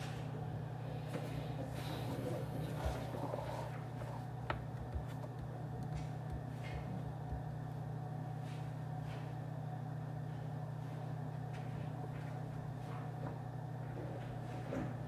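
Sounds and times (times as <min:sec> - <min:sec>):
ventilation hum: 0:00.0 - 0:15.0
faint clicks and taps: 0:04.0 - 0:07.5.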